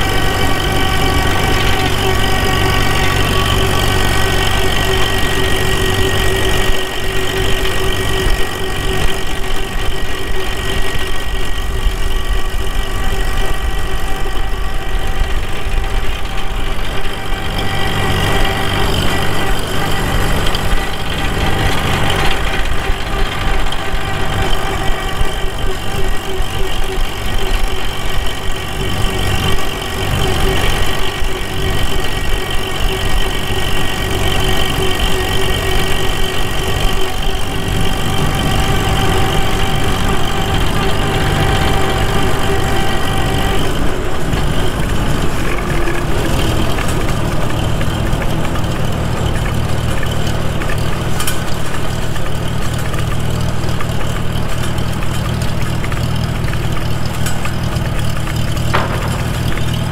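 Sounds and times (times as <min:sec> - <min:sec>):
high gear whine: 0:00.0 - 0:59.9
tractor engine running: 0:00.0 - 0:59.9.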